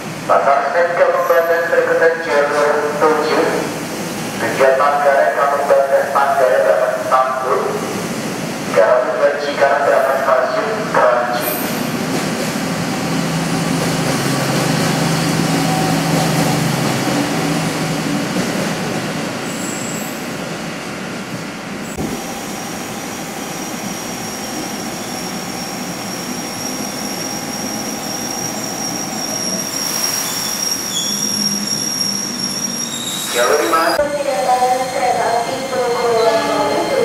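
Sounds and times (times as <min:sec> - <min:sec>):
train wheel and engine noise: 0:00.0 - 0:37.0
station noise: 0:04.4 - 0:07.8, 0:33.3 - 0:37.0
electric train high whine: 0:21.8 - 0:37.0.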